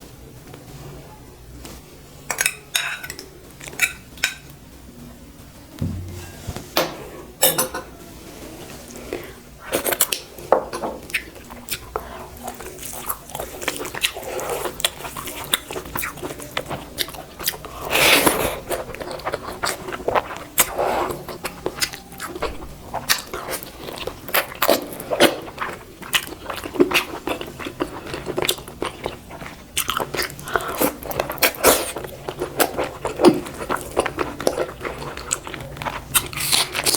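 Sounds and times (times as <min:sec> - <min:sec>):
person chewing crunchy food: 0:11.0 - 0:36.9.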